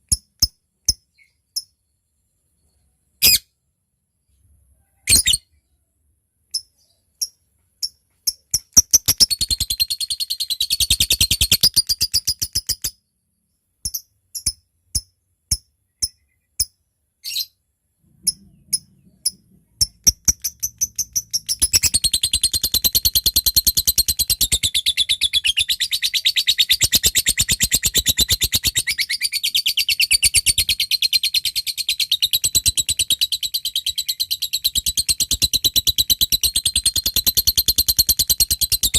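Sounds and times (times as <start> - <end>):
lovebird chirping and chattering: 3.2 - 3.4, 5.0 - 5.4, 6.5 - 13.0, 18.2 - 38.9.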